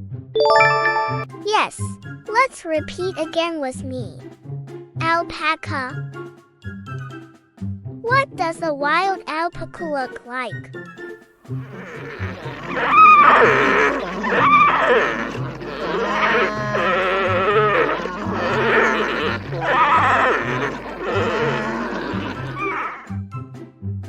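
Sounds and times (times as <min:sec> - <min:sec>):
children's music with bass line: 0:00.4 - 0:09.0
alpacas calling: 0:11.6 - 0:23.1.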